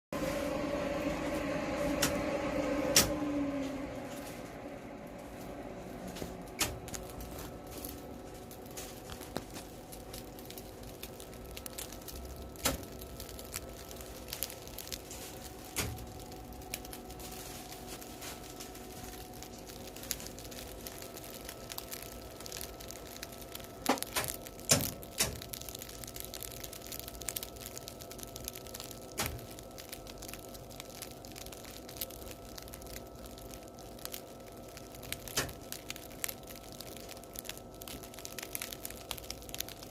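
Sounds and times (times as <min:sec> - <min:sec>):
bread crust crackling: 0:00.2 - 0:39.9
faint steady hum: 0:00.2 - 0:39.9.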